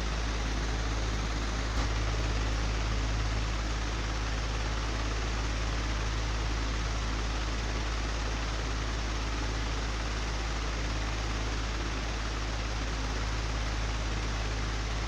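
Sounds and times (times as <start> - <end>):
electric fan humming: 0.0 - 7.7.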